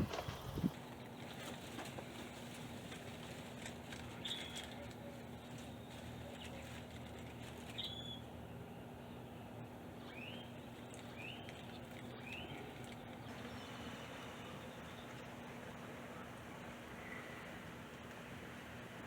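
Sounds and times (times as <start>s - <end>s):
faint steady low hum: 0.0s - 19.0s
bird chirping: 7.7s - 8.3s, 10.0s - 16.3s.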